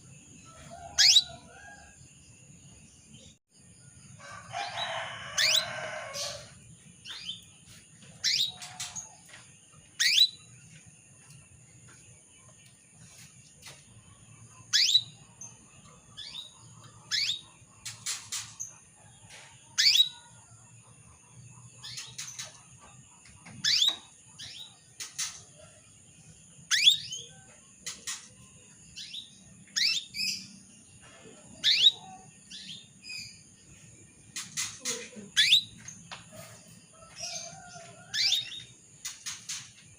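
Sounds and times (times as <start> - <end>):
canary call notes: 0.9 - 1.5.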